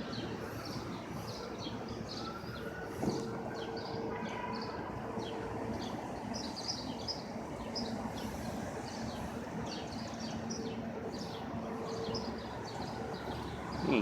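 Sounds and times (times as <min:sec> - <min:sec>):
small birds chirping: 0:00.0 - 0:14.0
street noise with low hum: 0:00.0 - 0:14.0.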